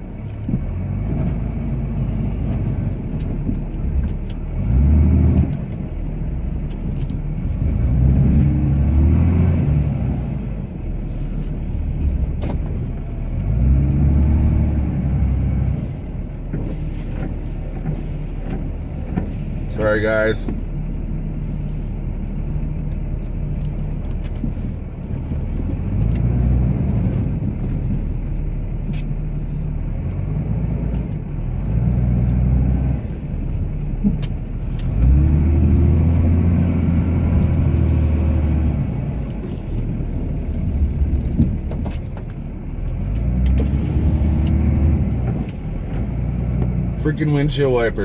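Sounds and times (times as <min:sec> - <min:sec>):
diesel truck engine under load: 0:00.0 - 0:48.0
sharp clicks and knocks: 0:16.4 - 0:19.6, 0:33.0 - 0:46.8.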